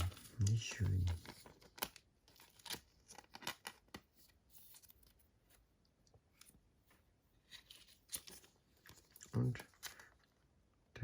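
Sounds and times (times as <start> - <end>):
trading cards rustling: 0.0 - 5.6, 7.4 - 10.4.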